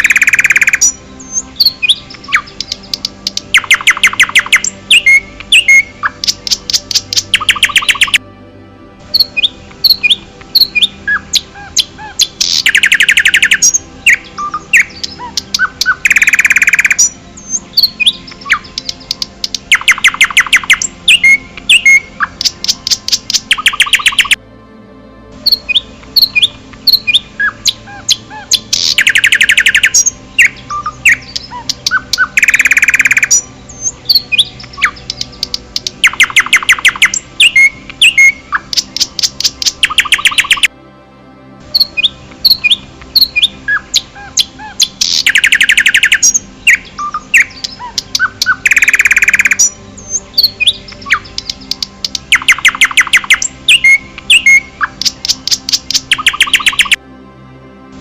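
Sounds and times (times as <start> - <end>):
short whistled bird chirps: 0.0 - 2.8, 9.2 - 22.5, 28.4 - 33.4, 44.8 - 49.7
songbird rapid trills: 0.0 - 8.2, 9.2 - 24.4, 25.5 - 40.7, 41.8 - 57.0.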